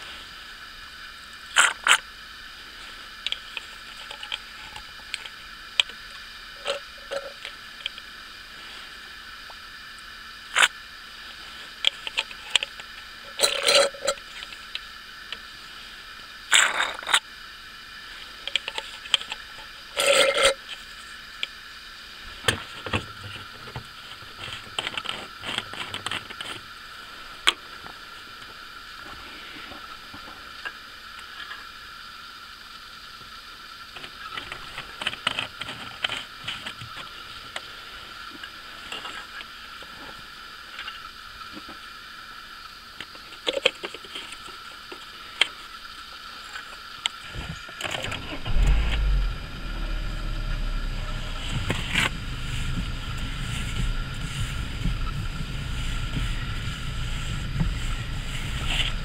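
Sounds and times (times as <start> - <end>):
small clicks and knocks: 18.4 - 20.8, 34.0 - 37.6
car engine starting and idling: 47.3 - 59.0.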